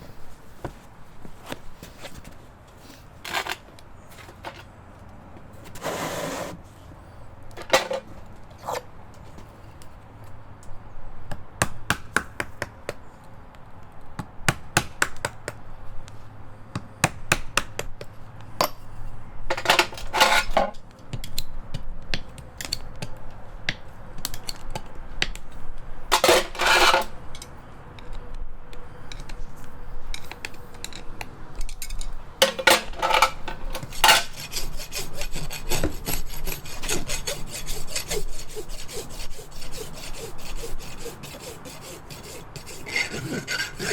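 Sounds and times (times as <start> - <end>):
rasp scraping hoof: 5.6 - 6.6, 32.4 - 43.9.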